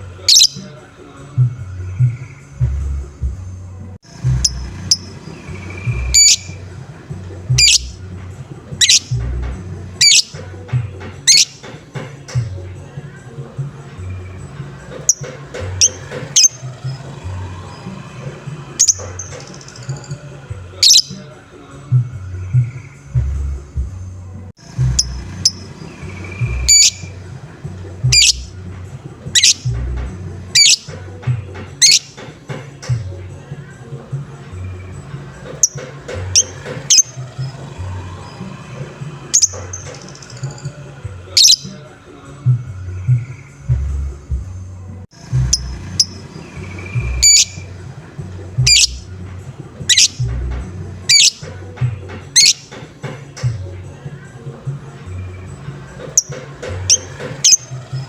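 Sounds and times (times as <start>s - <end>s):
lovebird squawking: 0.0s - 0.8s, 4.1s - 11.8s, 14.2s - 21.3s, 24.9s - 28.7s, 29.3s - 32.3s, 35.5s - 41.9s, 45.4s - 49.2s, 49.8s - 51.7s, 52.3s - 52.9s, 56.2s - 58.0s
bird chirps: 0.0s - 3.5s, 4.1s - 21.4s, 22.0s - 33.5s, 34.3s - 42.0s, 45.2s - 54.3s, 54.9s - 58.0s.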